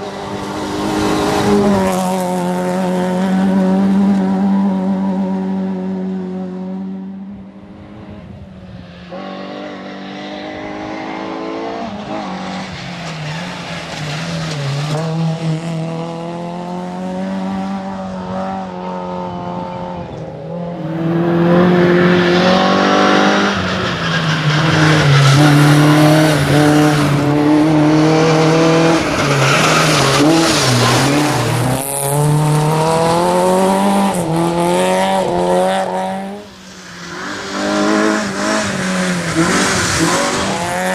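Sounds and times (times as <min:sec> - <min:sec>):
rally car engine revving: 0:00.0 - 0:40.9.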